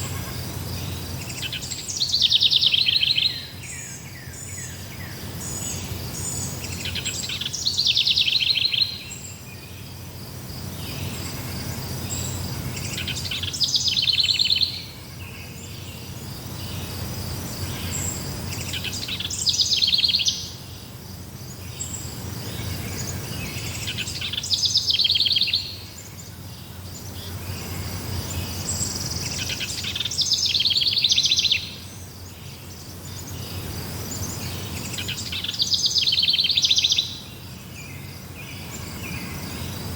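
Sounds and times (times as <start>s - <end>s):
high insect trill: 0.0s - 39.9s.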